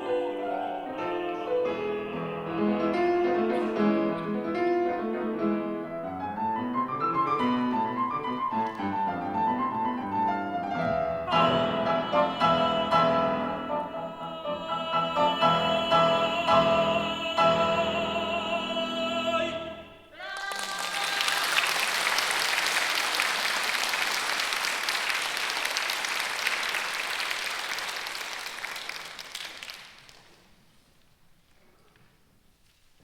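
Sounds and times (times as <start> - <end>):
tenor singing: 0.0 - 6.2, 10.4 - 21.5
piano accompaniment: 0.0 - 20.0
audience applause: 20.2 - 30.4.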